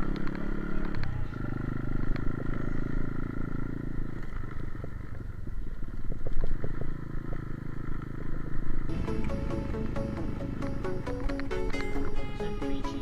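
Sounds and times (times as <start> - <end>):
motorcycle engine running: 0.0 - 13.0
music: 8.9 - 13.0.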